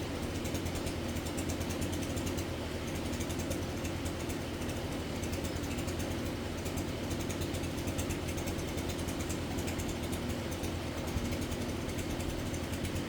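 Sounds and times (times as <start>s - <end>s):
motor running with ticking rattle: 0.0s - 13.0s.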